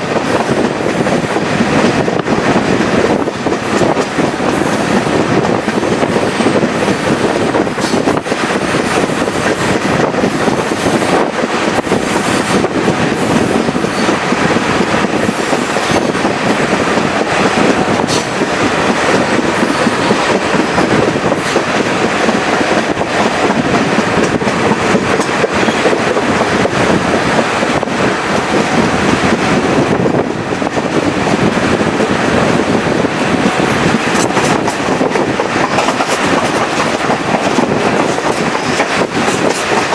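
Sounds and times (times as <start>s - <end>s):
train wheels rumbling on rails: 0.0s - 39.9s
clicking clatter over track: 0.2s - 14.4s, 18.0s - 28.8s, 33.1s - 39.9s.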